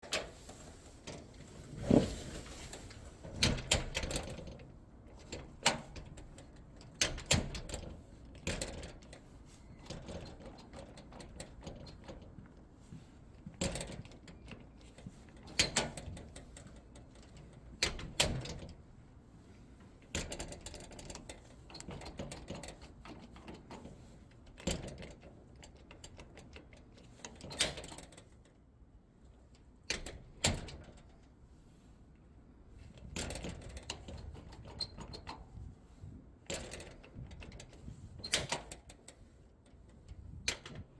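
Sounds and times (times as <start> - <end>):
clicks and knocks on a door lock: 3.3 - 9.2, 13.5 - 18.8, 20.1 - 23.8, 29.9 - 31.1.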